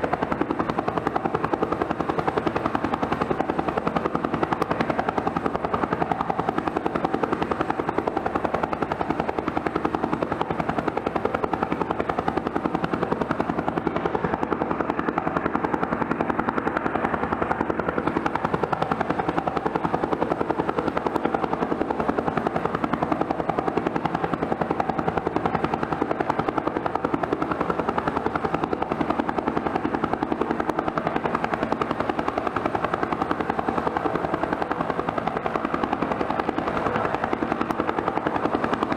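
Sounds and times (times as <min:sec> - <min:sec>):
helicopter turbine and rotor: 0:00.0 - 0:38.9.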